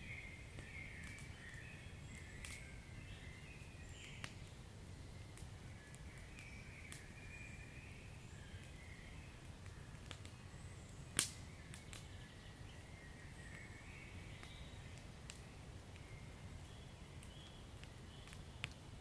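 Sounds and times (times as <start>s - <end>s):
wood fire crackling: 0.0s - 19.0s
fire pops: 9.6s - 10.4s, 11.2s - 12.1s, 14.4s - 16.1s, 17.2s - 18.9s.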